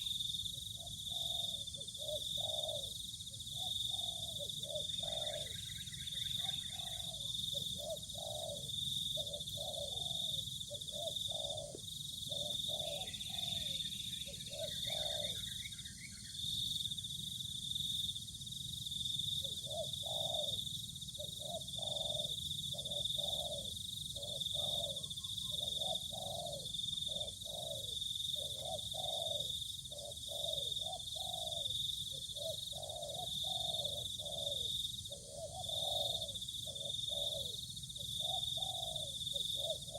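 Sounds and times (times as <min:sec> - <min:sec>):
dove cooing: 0:00.0 - 0:15.7, 0:19.4 - 0:20.6, 0:21.2 - 0:39.9.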